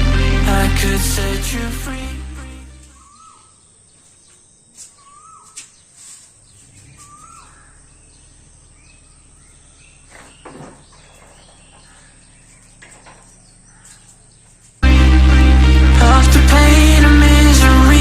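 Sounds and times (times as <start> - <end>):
faint outdoor background noise: 0.8 - 14.8
high bird chirps: 2.9 - 3.6.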